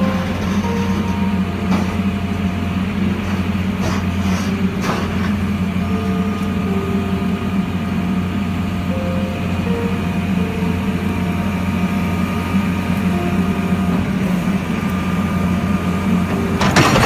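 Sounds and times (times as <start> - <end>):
short higher tones: 0.0 - 3.2, 5.4 - 16.6
excavator diesel engine running: 0.0 - 17.0
burst of clatter: 16.6 - 17.0.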